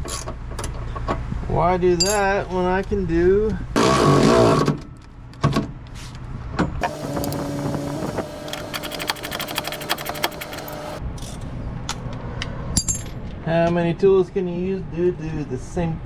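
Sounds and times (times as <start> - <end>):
power tool motor humming: 3.8 - 4.7, 6.8 - 11.0
rapid even clicking: 8.6 - 10.7.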